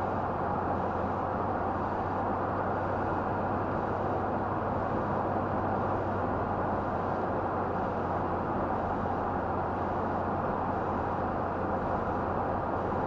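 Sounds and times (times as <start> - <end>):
low engine hum: 0.0 - 13.0
road and tyre hiss: 0.0 - 13.0.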